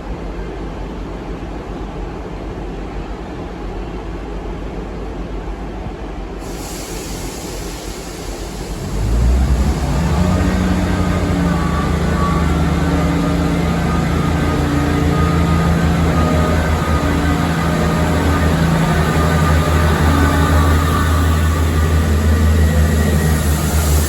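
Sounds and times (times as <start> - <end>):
railway rumble: 0.0 - 24.0
diesel locomotive engine: 6.4 - 24.0.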